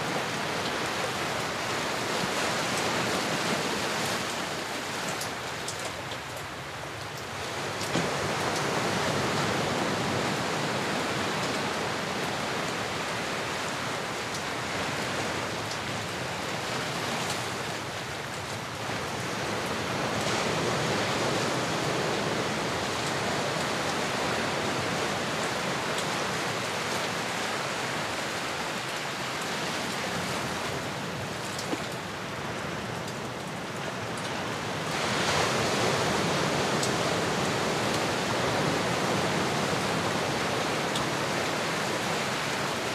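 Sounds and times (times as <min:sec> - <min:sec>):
waves washing in and out: 0:00.0 - 0:42.9.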